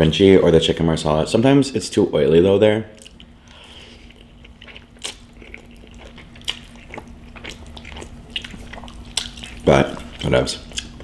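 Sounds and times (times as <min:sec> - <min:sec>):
wet chewing mouth smacks: 0:04.0 - 0:11.0.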